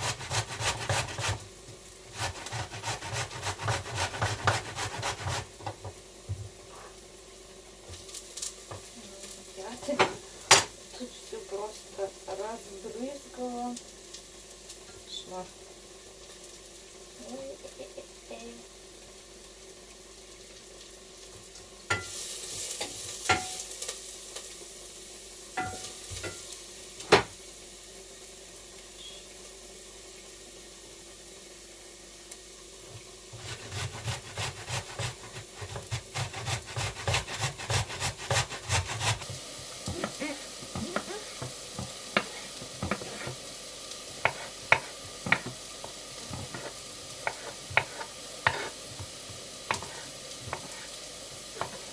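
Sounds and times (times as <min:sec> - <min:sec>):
rapid whisking: 0:00.0 - 0:01.4, 0:02.2 - 0:05.5, 0:33.4 - 0:43.4, 0:44.1 - 0:51.9
faint steady hiss: 0:00.0 - 0:51.9.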